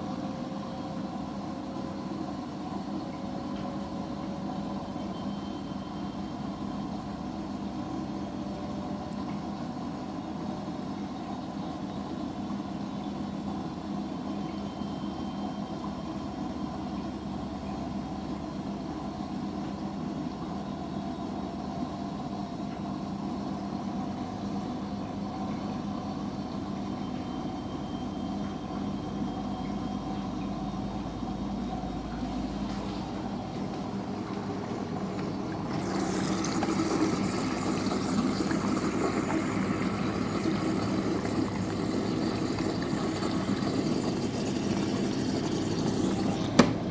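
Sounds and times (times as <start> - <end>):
washing machine motor hum: 0.0 - 46.9.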